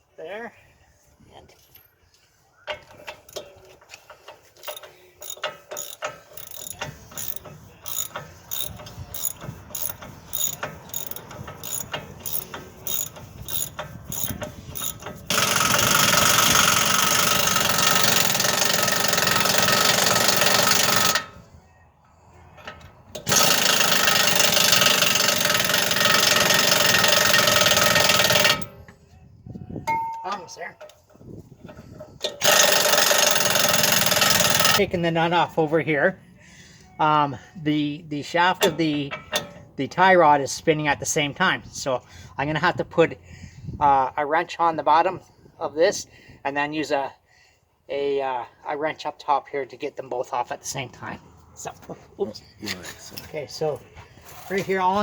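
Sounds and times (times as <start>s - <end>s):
socket ratchet clicking: 4.6s - 18.2s
air tool running: 4.6s - 18.7s.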